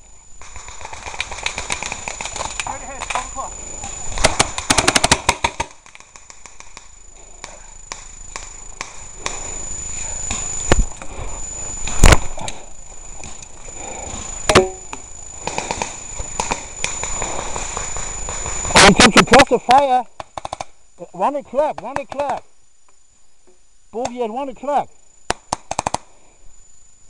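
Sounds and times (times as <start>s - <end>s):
sharp cracks and knocks: 0.4s - 3.2s, 4.2s - 9.4s, 20.2s - 20.7s
airsoft gun rapid burst: 0.5s - 2.5s, 4.1s - 6.8s.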